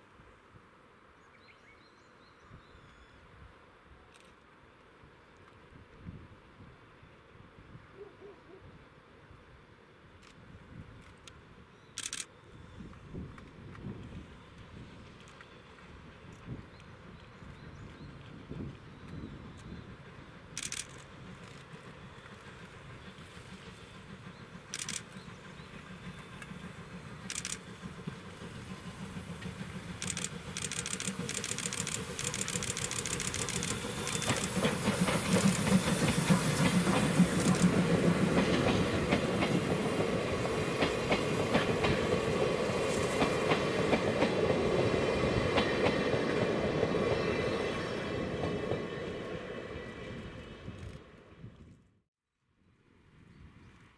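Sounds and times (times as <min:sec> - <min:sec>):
train wheels clicking over rail joints: 0:18.6 - 0:46.8.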